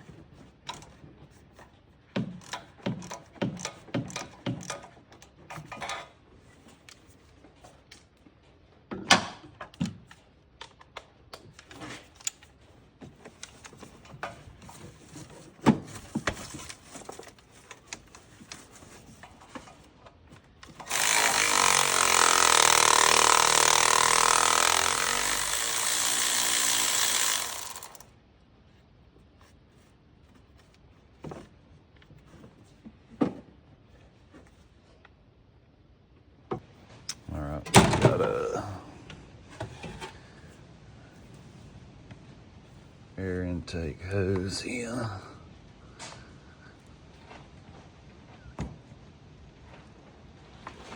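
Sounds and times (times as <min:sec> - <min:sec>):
power tool running: 0:20.7 - 0:28.1.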